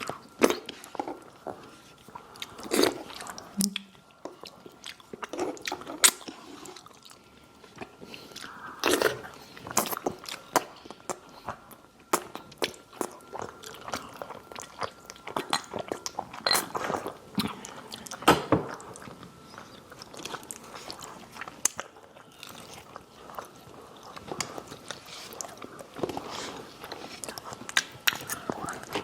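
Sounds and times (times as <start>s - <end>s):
wet mouth clicks: 3.6s - 4.0s
crunching fried chicken: 18.7s - 29.0s.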